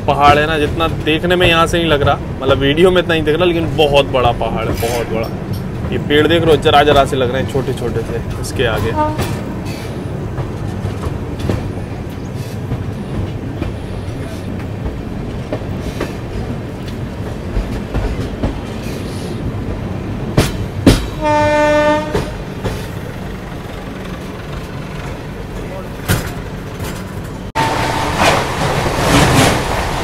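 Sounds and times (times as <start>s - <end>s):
train wheels rumbling on rails: 0.0s - 30.0s
train horn blast: 8.9s - 9.5s, 21.2s - 22.4s, 27.6s - 28.5s
sharp loud knocks: 20.3s - 21.2s.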